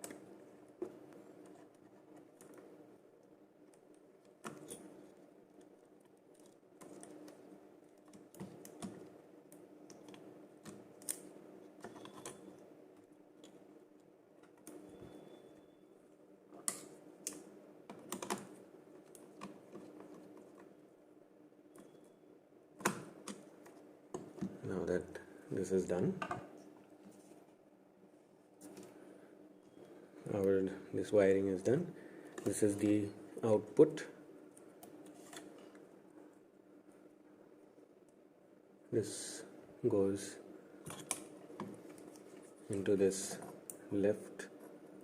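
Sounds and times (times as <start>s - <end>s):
wires and small parts clicking: 0.0s - 15.2s, 16.6s - 20.7s
faint steady hum: 0.0s - 45.0s.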